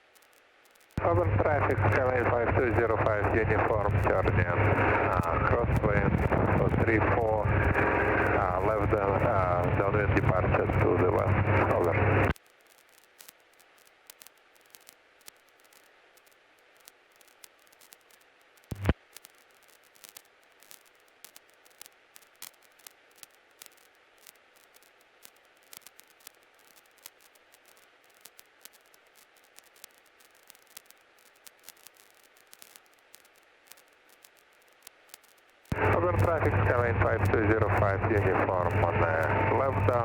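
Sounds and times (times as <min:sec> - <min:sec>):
static crackles: 0:00.0 - 0:40.0
intercom hiss: 0:01.0 - 0:12.3, 0:35.7 - 0:40.0.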